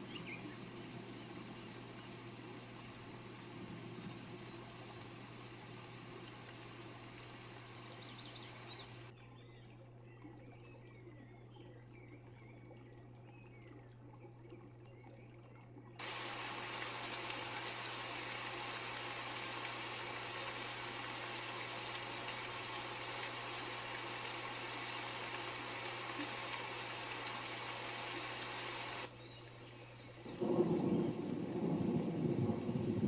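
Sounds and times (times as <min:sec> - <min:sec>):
heavy rain hissing: 0:00.0 - 0:09.1, 0:16.0 - 0:29.1, 0:30.2 - 0:33.0.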